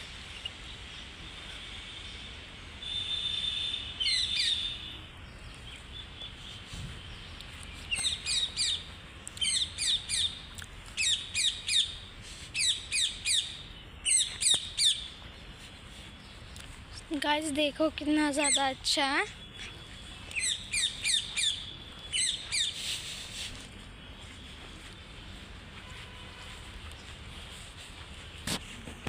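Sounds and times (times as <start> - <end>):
birds calling: 2.8 - 26.0.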